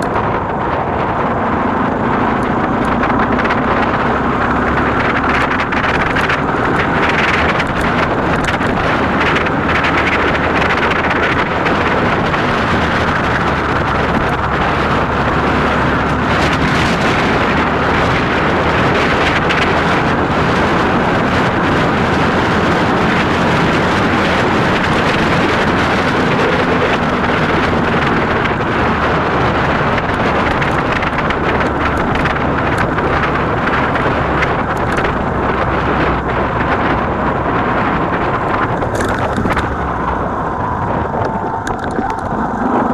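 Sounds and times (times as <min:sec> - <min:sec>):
motorcycle engine running: 0:00.0 - 0:42.9
wind buffeting microphone: 0:00.0 - 0:42.9.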